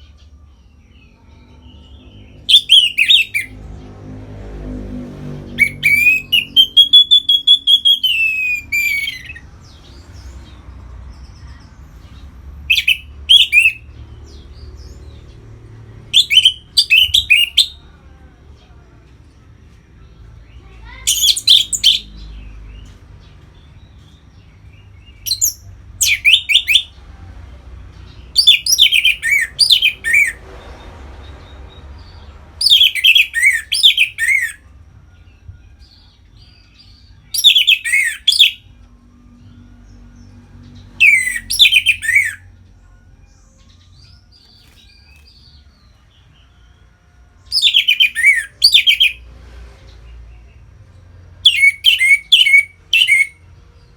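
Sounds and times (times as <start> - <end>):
thrush singing whistled notes: 2.4 - 3.5, 5.5 - 9.4, 12.7 - 13.9, 16.1 - 17.8, 25.2 - 26.9, 28.4 - 30.4, 32.6 - 34.6, 37.3 - 38.7, 41.0 - 42.4, 47.5 - 49.2, 51.4 - 53.5.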